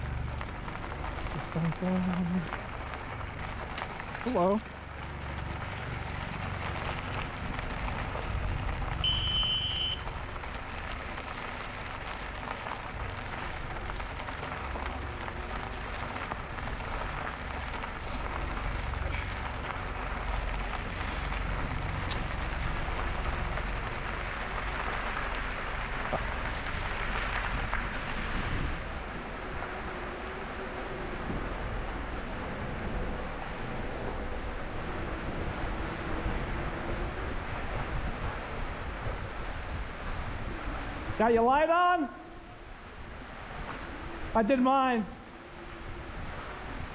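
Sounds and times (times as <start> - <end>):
bike tyre noise on trail: 0.0 - 46.9
wind buffeting microphone: 20.2 - 41.2.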